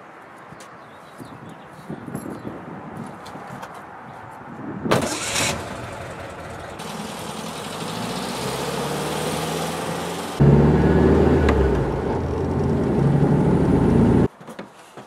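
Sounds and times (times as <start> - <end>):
car engine starting and running: 4.9 - 14.3
loud deep engine sound: 5.2 - 14.3.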